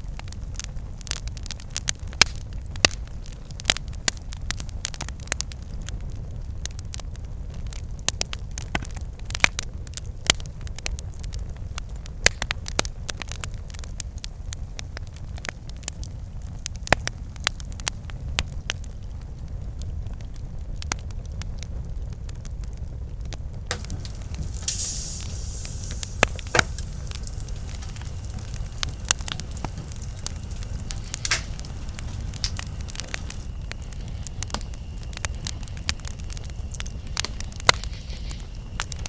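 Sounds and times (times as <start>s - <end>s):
campfire crackling: 0.0s - 39.0s
high hiss: 23.7s - 39.0s.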